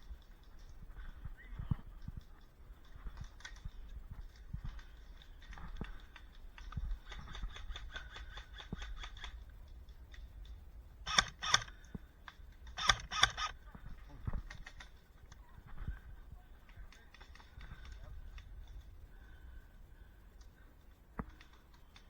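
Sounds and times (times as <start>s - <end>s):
airsoft guns firing: 11.1s - 11.8s, 12.7s - 13.6s.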